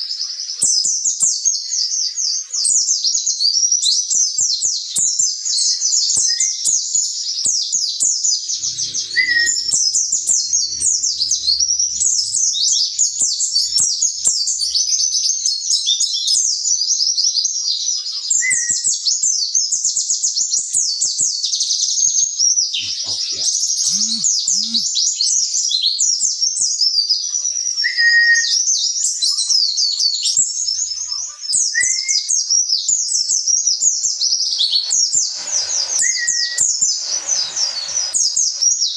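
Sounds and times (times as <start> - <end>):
low whistled bird notes: 8.4 - 15.5, 33.4 - 38.9
bird twittering chatter: 8.5 - 15.4, 22.8 - 24.9, 33.4 - 38.9.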